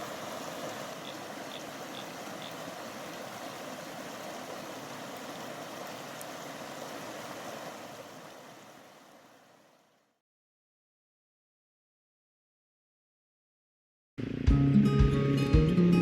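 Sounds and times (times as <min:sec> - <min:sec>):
stream water flowing: 0:00.0 - 0:10.2.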